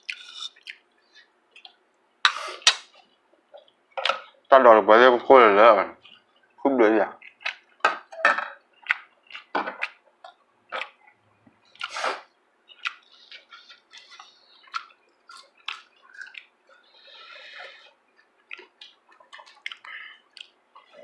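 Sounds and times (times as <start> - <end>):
wet chewing smacks: 0.0 - 1.8, 11.7 - 16.6, 17.5 - 21.0.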